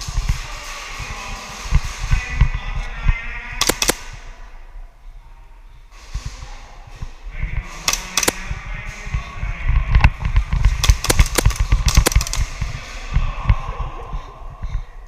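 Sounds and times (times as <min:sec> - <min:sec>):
low rumble: 0:00.0 - 0:15.0
airsoft pistols firing: 0:03.6 - 0:04.3, 0:07.9 - 0:08.6, 0:10.6 - 0:12.6.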